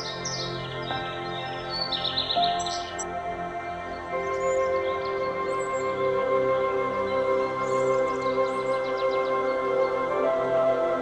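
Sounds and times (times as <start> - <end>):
small birds chirping: 0.0 - 3.2
soft ambient music: 0.0 - 11.0.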